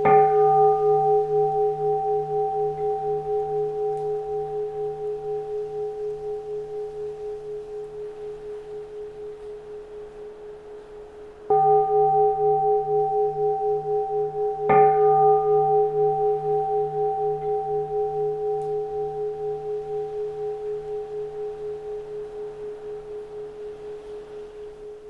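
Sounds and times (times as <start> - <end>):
temple bell ringing: 0.0 - 6.8, 11.5 - 22.4.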